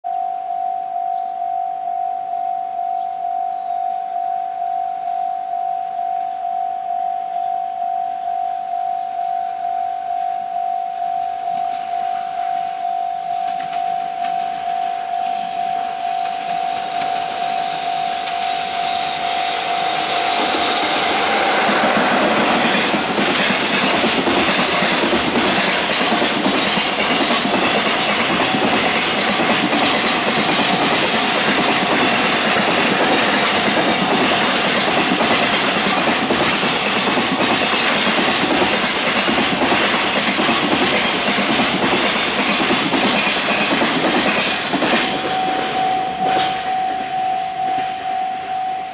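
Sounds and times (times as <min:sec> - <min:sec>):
level-crossing warning bell: 0:00.1 - 0:48.9
wagon wheels clattering over rail joints: 0:22.0 - 0:47.1.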